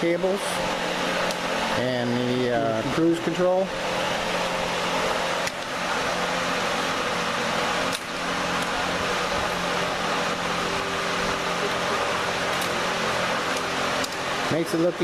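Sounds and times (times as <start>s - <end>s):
fan whirring with low hum: 0.0s - 15.0s.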